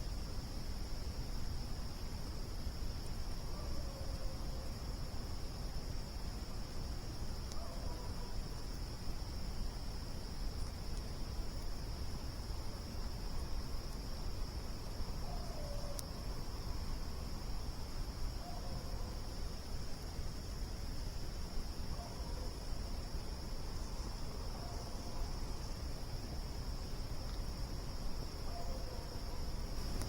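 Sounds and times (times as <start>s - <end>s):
crickets trilling: 0.0s - 30.0s
campfire rumbling: 29.6s - 30.0s
campfire pop: 29.8s - 30.0s.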